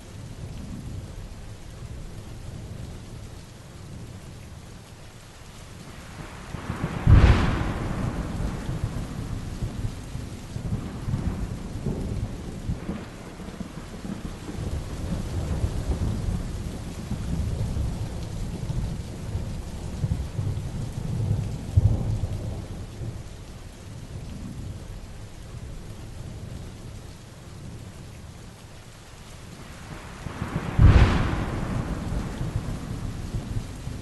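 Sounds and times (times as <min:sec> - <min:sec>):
heavy rain falling: 0:00.0 - 0:34.0
low rolling thunder rumbles: 0:05.8 - 0:28.1, 0:29.4 - 0:34.0
sharp thunderclap: 0:06.5 - 0:18.1, 0:30.0 - 0:34.0.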